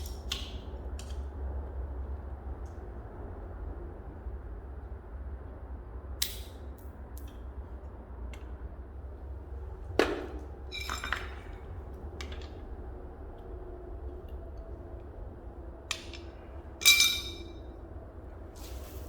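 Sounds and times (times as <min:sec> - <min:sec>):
steady low hum: 0:06.9 - 0:19.0
metal parts knocking and clinking: 0:10.0 - 0:11.6, 0:15.9 - 0:17.6.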